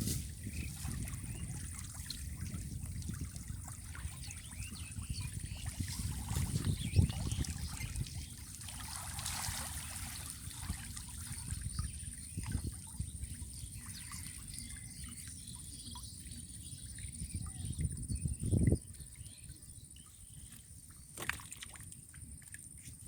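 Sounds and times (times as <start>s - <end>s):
river water trickling and splashing: 0.0s - 23.0s.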